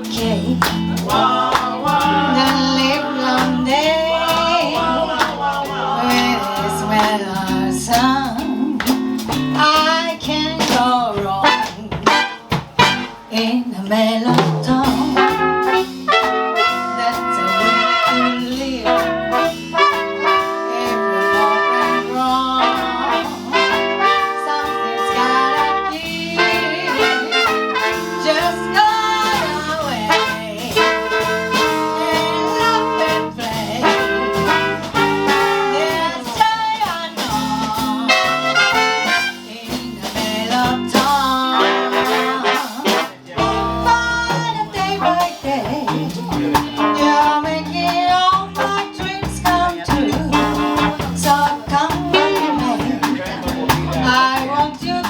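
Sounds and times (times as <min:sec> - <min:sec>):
steady bass beat: 0:00.0 - 0:13.3, 0:14.3 - 0:16.2, 0:17.0 - 0:41.6, 0:42.9 - 0:55.0
jazz band playing: 0:00.0 - 0:55.0
horns playing melody: 0:11.3 - 0:13.5, 0:14.8 - 0:54.2.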